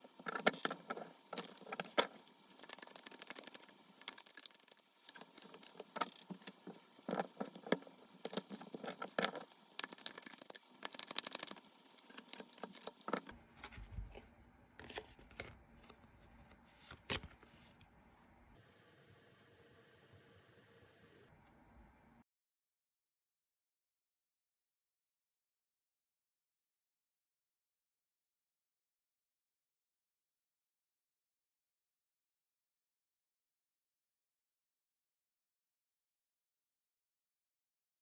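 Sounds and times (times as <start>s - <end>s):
cards shuffling: 0.2s - 13.8s, 16.8s - 17.6s.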